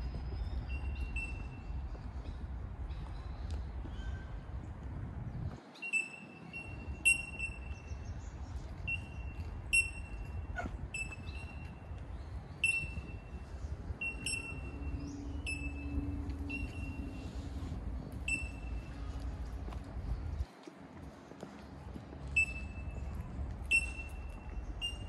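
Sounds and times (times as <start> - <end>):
bird's high clear call: 8.9 - 11.9
low steady rumble: 11.8 - 20.5.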